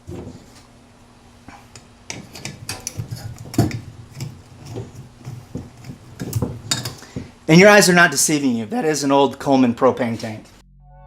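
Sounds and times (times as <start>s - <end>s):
metal tools clinking and knocking: 2.1s - 7.2s.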